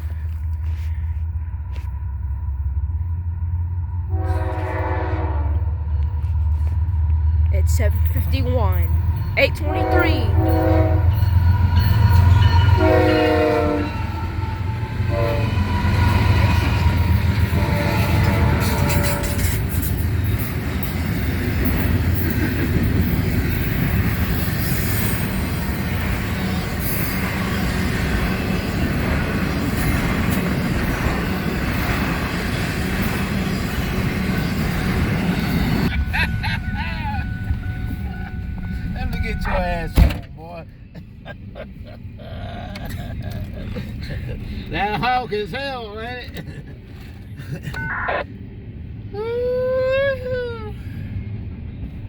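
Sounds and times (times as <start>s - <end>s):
locomotive engine rumble: 0.0s - 52.0s
locomotive air horn: 4.1s - 6.0s, 9.4s - 11.4s, 12.2s - 19.8s, 35.8s - 39.8s.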